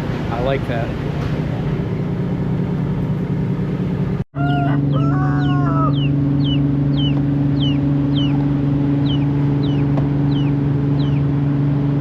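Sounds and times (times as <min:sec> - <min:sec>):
ferry engine humming: 0:00.0 - 0:12.0
chick peeping: 0:04.4 - 0:11.2.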